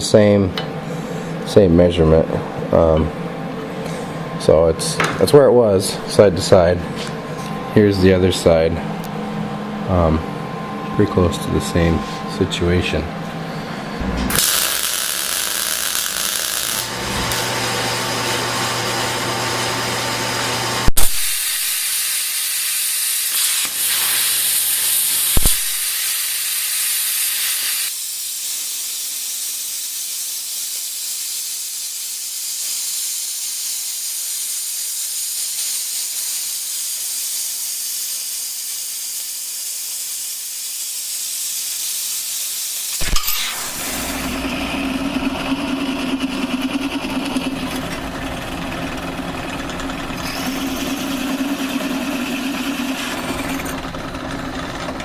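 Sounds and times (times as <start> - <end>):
welding hiss: 14.3 - 17.5, 20.9 - 44.4
sharp click: 25.4 - 25.8, 43.0 - 43.7.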